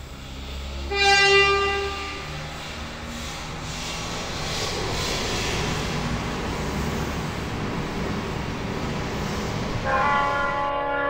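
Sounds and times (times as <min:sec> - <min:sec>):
train rolling: 0:00.0 - 0:11.0
multi-tone train horn: 0:00.8 - 0:02.4, 0:09.8 - 0:11.0.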